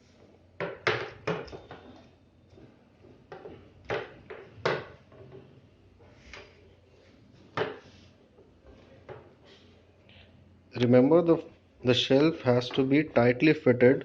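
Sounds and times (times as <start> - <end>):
pipes and plastic joints knocking: 0.6 - 5.6.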